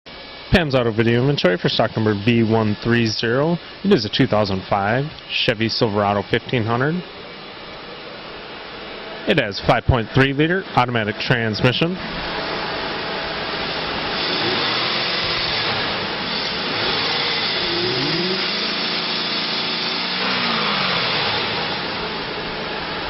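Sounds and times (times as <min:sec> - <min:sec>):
truck engine running and revving: 0:13.5 - 0:23.0.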